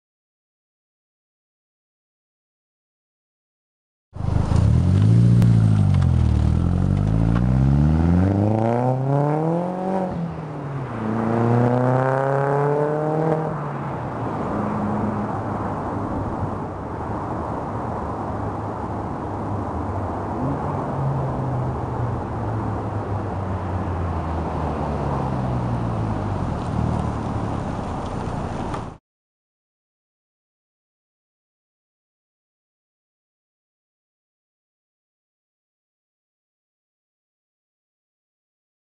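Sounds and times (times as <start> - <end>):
car engine accelerating: 4.2 - 13.6.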